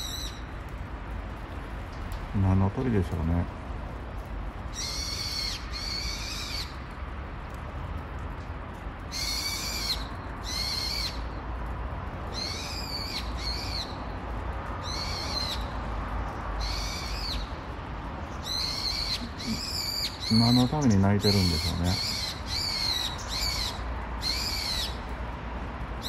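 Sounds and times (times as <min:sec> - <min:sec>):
bird shrill calls: 0:18.4 - 0:25.0.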